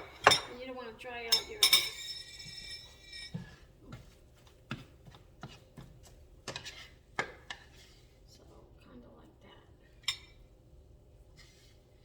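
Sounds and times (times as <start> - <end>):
metallic clink ringing: 1.3 - 3.4.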